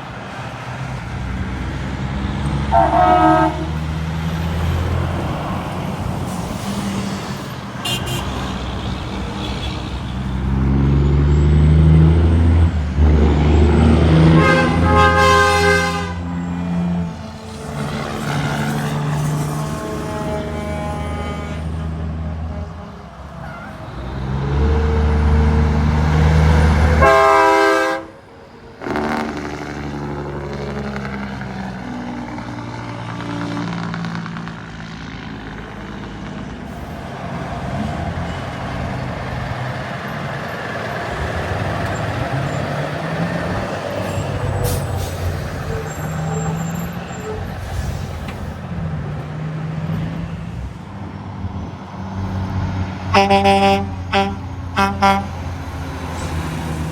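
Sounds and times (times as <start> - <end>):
diesel trucks pulling away: 0.0 - 56.9
truck horn blast: 2.6 - 4.8, 7.8 - 11.7, 13.0 - 25.8, 26.6 - 29.9, 53.1 - 55.6.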